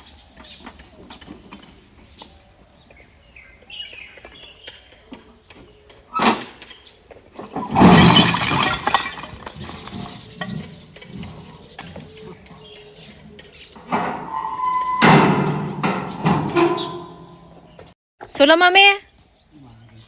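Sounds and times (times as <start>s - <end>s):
rubble crashing and clattering: 7.4s - 12.8s, 13.6s - 18.0s.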